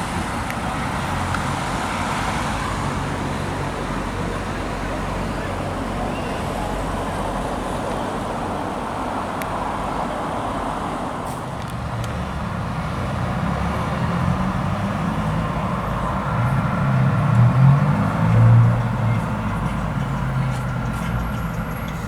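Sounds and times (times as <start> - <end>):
tyre and road noise: 0.0 - 22.0
vehicle engine approaching: 11.3 - 22.0.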